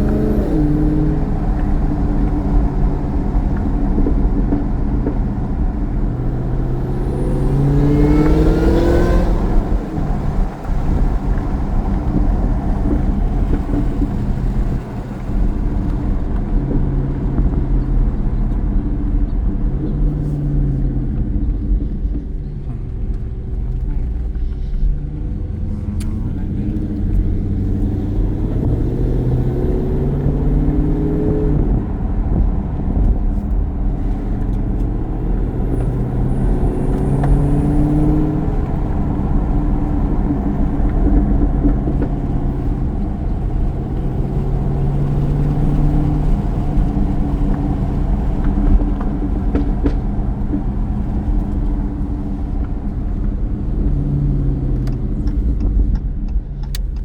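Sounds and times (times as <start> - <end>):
car engine low rumble: 0.0 - 57.0.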